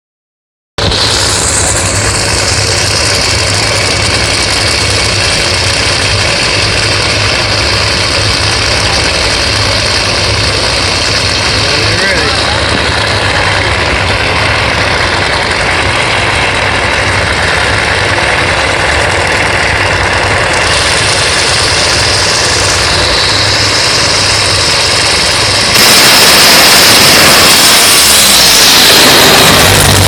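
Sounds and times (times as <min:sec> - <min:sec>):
drag racing engine roaring: 0:00.8 - 0:30.0.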